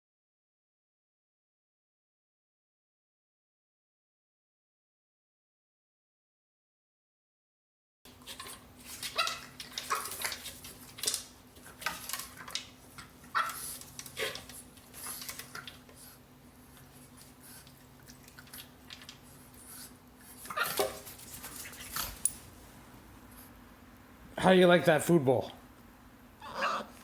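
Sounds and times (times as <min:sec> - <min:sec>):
puppy crunching kibble: 0:08.2 - 0:22.6.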